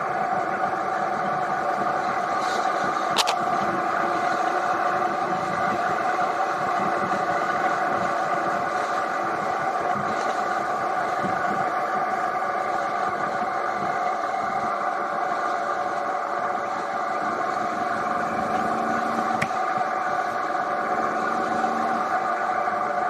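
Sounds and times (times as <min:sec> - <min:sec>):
wind and road noise: 0:00.0 - 0:23.0
motorcycle engine cruising: 0:17.2 - 0:22.9.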